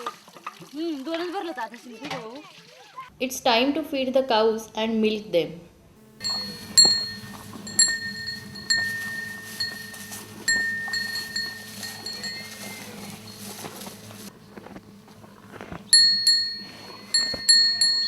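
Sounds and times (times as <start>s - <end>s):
cow bell clinking: 6.2s - 14.2s, 15.9s - 18.0s.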